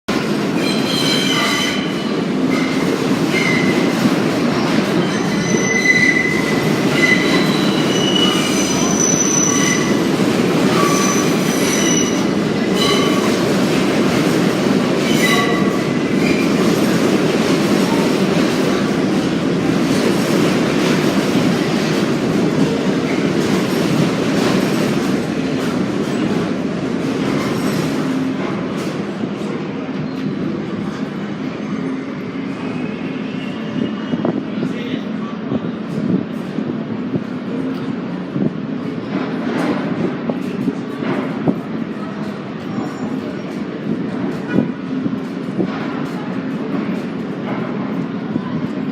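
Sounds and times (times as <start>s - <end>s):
subway train rumbling on rails: 0.0s - 48.9s
steel wheels squealing: 0.5s - 3.9s, 4.6s - 13.4s, 15.0s - 16.6s.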